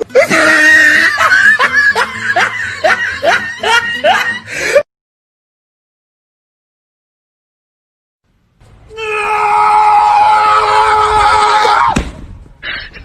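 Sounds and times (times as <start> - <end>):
person laughing hard: 0.0 - 4.8.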